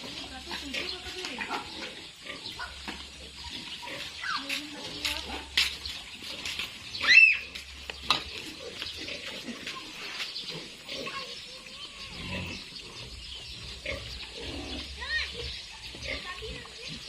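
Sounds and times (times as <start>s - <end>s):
piglet squealing: 7.0s - 7.5s.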